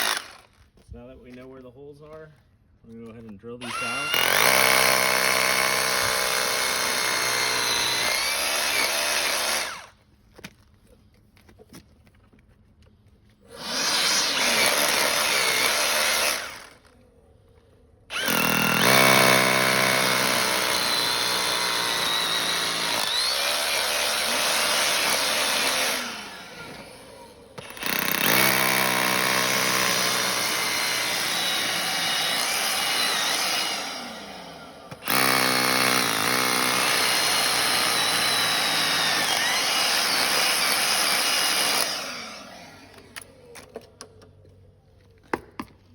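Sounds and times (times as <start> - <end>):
power drill boring into pavement: 0.0 - 0.6, 3.6 - 10.0, 13.5 - 17.0, 18.1 - 43.9.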